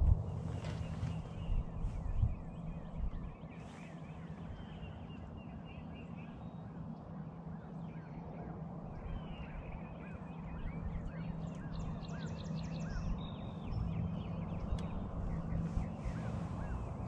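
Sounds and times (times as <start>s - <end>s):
wind rumble: 0.0s - 7.4s, 8.6s - 17.0s
steady low hum: 0.0s - 17.0s
small birds chirping: 0.2s - 6.9s, 9.0s - 17.0s.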